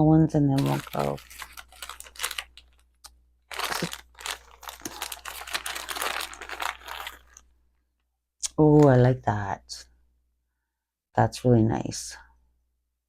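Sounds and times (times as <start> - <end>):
plastic bags crinkling: 0.5 - 7.5.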